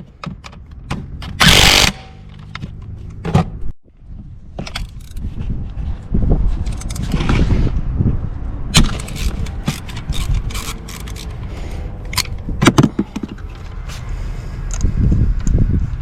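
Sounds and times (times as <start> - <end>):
metal tools clinking and scraping: 8.9 - 11.5.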